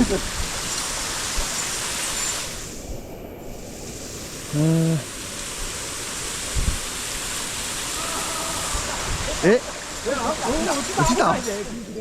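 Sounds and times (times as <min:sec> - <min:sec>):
waterfall rushing: 0:00.0 - 0:02.9, 0:03.6 - 0:12.0
person's short voiced sound: 0:04.5 - 0:05.1.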